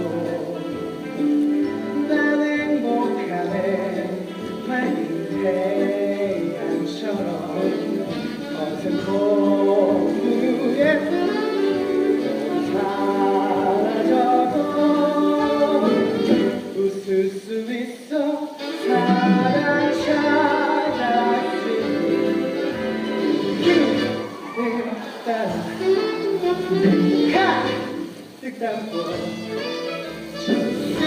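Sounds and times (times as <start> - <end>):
instrumental accompaniment: 0.0 - 16.8, 18.6 - 24.8, 25.4 - 31.0
person singing: 0.0 - 31.0.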